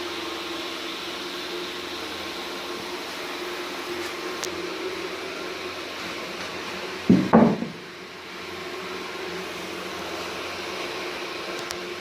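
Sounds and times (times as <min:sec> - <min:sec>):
wooden knocks: 0:07.1 - 0:07.8.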